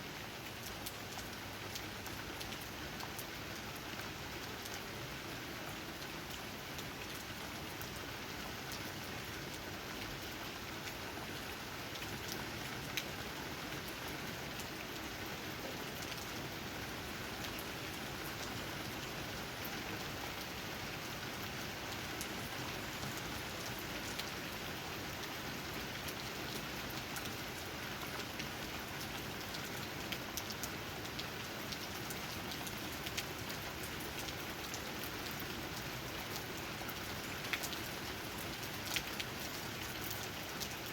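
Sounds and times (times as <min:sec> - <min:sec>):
louder raindrops: 0:00.0 - 0:40.9
rain falling on leaves: 0:00.0 - 0:40.9.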